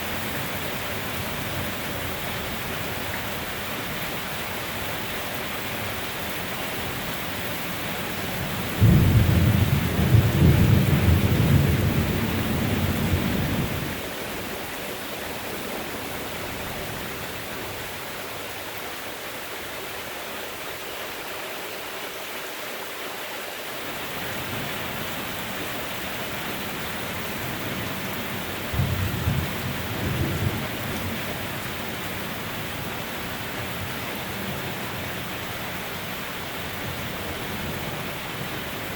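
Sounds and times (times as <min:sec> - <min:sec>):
heavy rain: 0:00.0 - 0:38.9
thunder clap and rumble: 0:08.7 - 0:14.0, 0:28.7 - 0:31.1.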